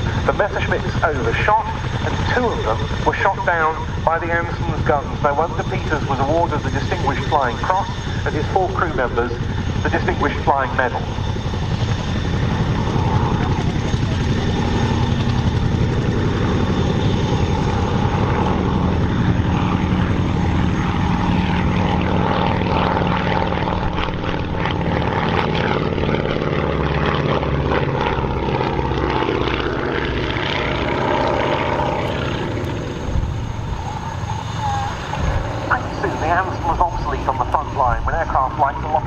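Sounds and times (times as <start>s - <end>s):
twin propeller aircraft droning: 0.0s - 39.0s.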